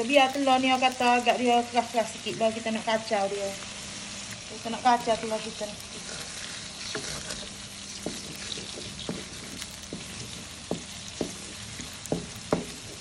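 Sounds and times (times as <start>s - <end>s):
eggs sizzling in oil: 0.0s - 13.0s
wooden spatula knocking on wok: 8.0s - 13.0s.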